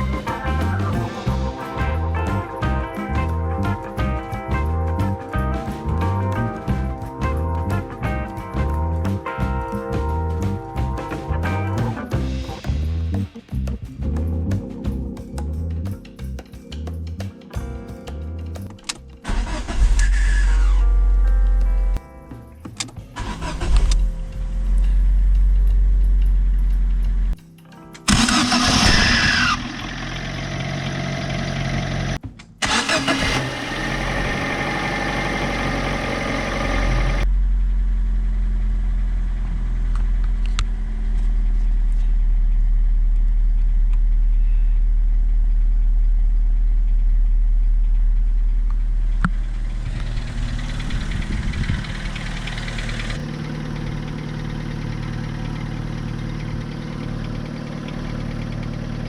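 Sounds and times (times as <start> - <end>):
car engine starting and idling: 0.0 - 13.8, 18.6 - 27.4, 28.0 - 59.0.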